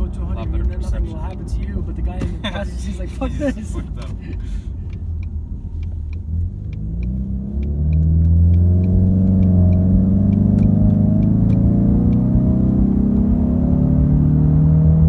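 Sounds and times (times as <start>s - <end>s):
car engine accelerating: 0.0s - 15.0s
light ticking: 0.4s - 12.3s.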